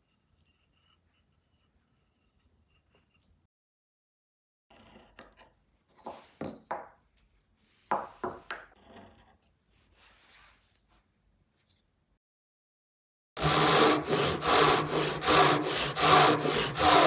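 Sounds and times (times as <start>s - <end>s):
hand tool scraping wood: 13.4s - 17.0s.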